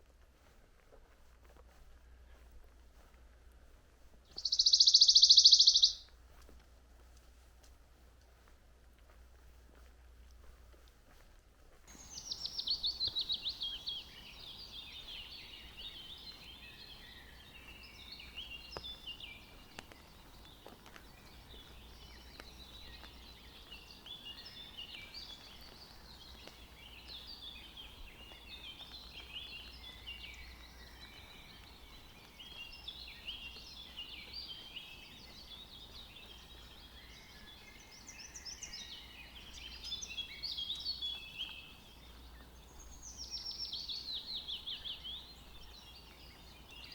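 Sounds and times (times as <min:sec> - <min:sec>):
forest birds singing: 0:04.3 - 0:06.1, 0:11.9 - 0:46.9.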